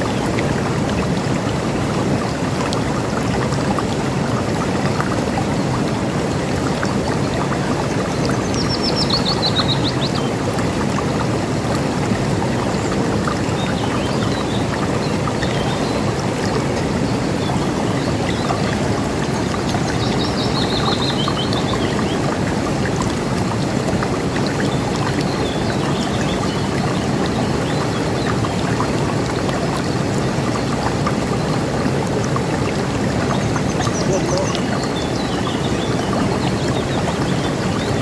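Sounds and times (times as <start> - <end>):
river water rushing: 0.0 - 38.0.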